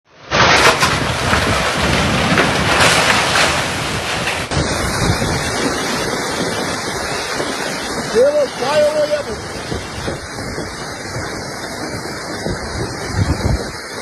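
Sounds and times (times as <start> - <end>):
rushing floodwater: 0.3 - 14.0
wind buffeting microphone: 0.4 - 14.0.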